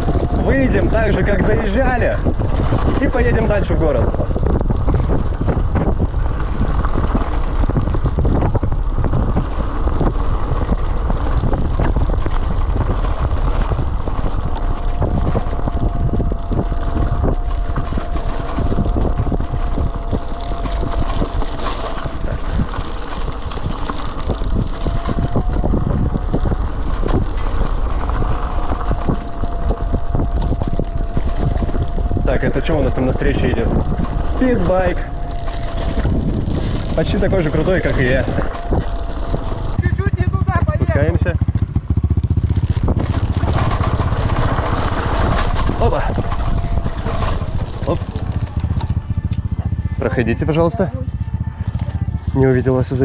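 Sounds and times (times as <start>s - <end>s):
road rumble: 0.0s - 53.0s
wind buffeting microphone: 0.0s - 53.0s
thin steady whine: 13.2s - 53.0s.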